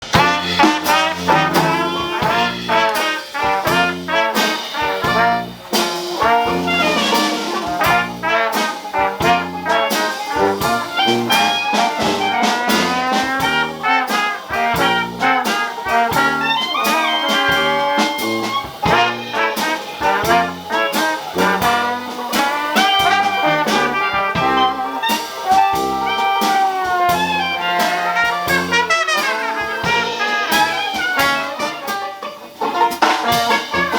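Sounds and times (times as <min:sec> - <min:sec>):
walking bass line: 0:00.0 - 0:31.7
steady beat: 0:00.0 - 0:33.9
trombone: 0:00.0 - 0:33.9
trumpet: 0:00.0 - 0:33.9.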